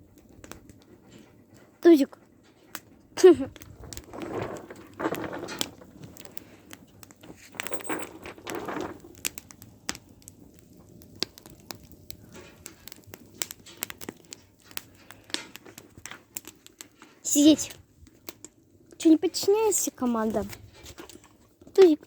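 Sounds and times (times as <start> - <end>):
campfire crackling: 0.0 - 22.0
rustling: 3.2 - 9.4.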